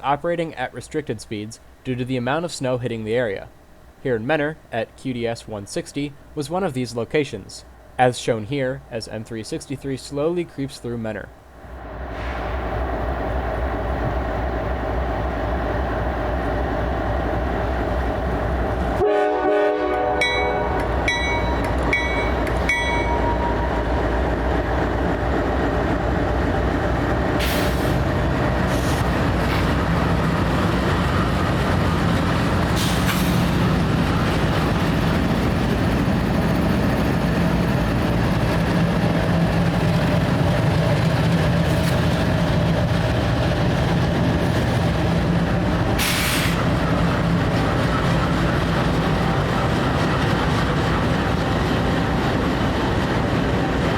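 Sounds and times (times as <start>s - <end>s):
locomotive engine hum: 0.0s - 53.9s
freight train rumbling past: 11.3s - 53.9s
locomotive horn: 19.0s - 21.0s.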